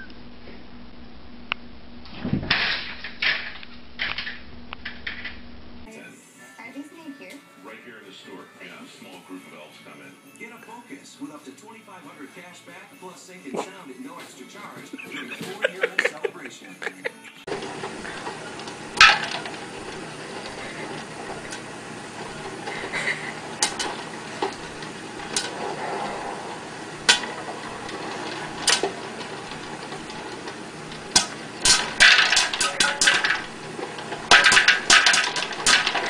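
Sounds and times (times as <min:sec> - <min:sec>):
popcorn popping: 0:01.5 - 0:05.4, 0:17.5 - 0:36.0.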